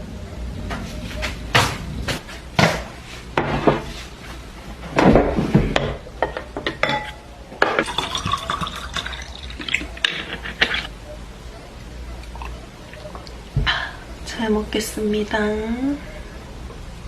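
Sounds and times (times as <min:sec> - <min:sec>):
dishes and cutlery clattering: 0:05.0 - 0:08.6, 0:09.6 - 0:10.9.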